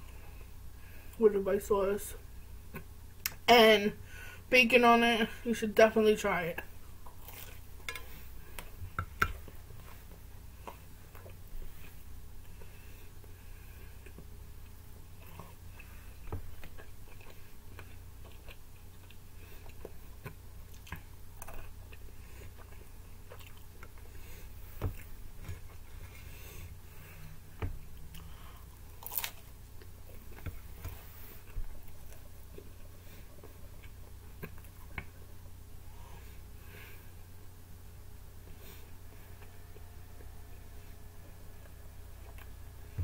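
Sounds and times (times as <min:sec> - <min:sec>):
steady low hum: 0:00.0 - 0:43.0
person chewing pizza: 0:07.0 - 0:08.7, 0:09.4 - 0:36.4
crisp crunches: 0:29.0 - 0:29.5.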